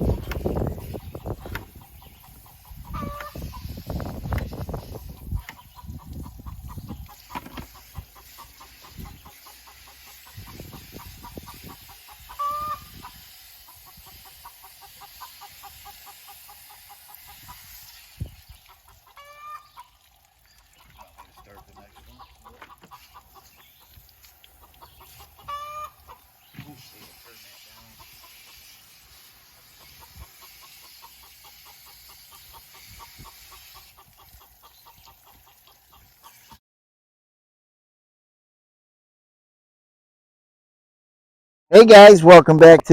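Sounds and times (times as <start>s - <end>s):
chickens clucking: 0.0s - 20.0s, 20.6s - 36.6s.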